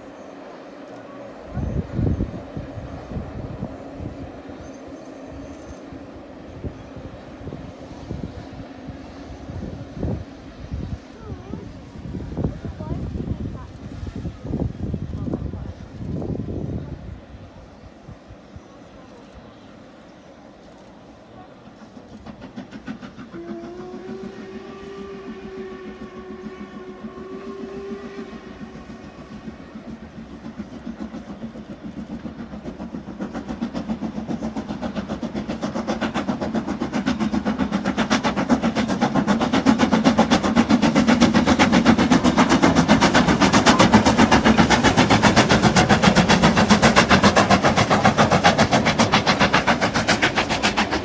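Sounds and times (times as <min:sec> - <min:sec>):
steam locomotive exhaust beating: 0:00.0 - 0:51.0
train whistle: 0:23.2 - 0:29.8.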